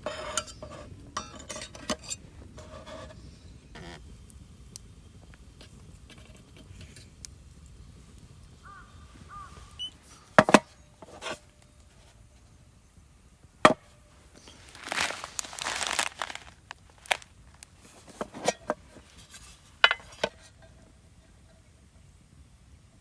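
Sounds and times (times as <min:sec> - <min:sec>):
rustling: 0:14.2 - 0:20.5.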